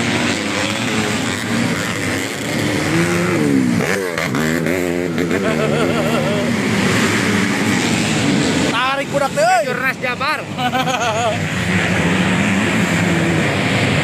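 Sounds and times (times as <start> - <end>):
motorcycle engines racing: 0.0 - 14.0
motorcycle passing by: 0.0 - 14.0.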